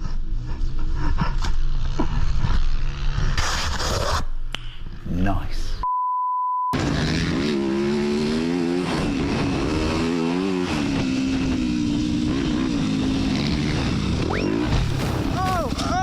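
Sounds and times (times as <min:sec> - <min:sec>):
dirt bike engine revving: 0:01.6 - 0:03.4, 0:06.8 - 0:15.4.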